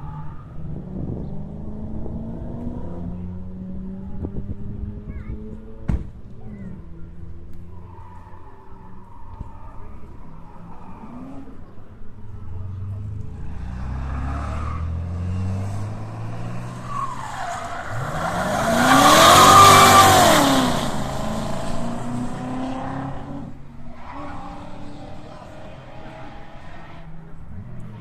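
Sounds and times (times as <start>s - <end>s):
car engine revving: 8.9s - 28.0s
loud exhaust rush: 12.4s - 27.6s.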